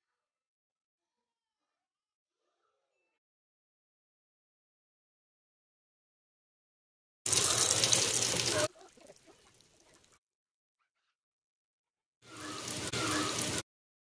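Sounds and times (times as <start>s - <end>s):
food sizzling in hot oil: 7.3s - 8.7s, 12.3s - 13.6s.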